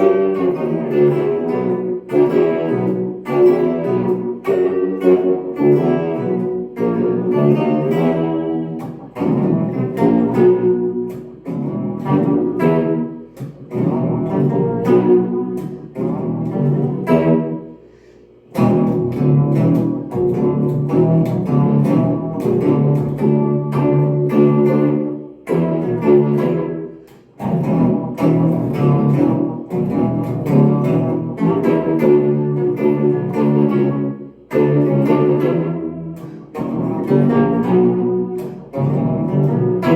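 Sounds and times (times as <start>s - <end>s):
deep pitch-shifted electric guitar: 0.0s - 39.9s.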